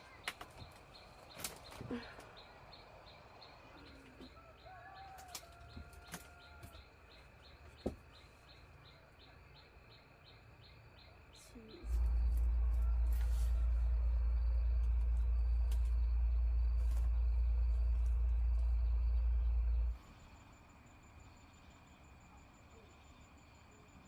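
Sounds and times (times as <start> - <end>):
faint bird chirps: 0.0 - 24.0
loud steady low hum: 11.8 - 23.8.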